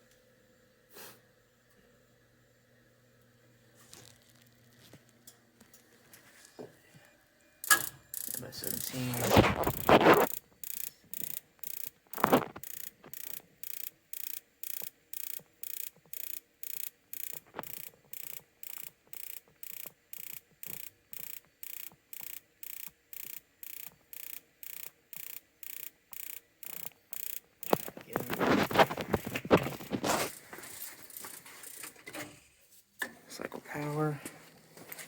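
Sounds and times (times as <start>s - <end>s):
spark igniter ticking: 7.6s - 30.4s
rustling and knocking: 27.6s - 32.4s.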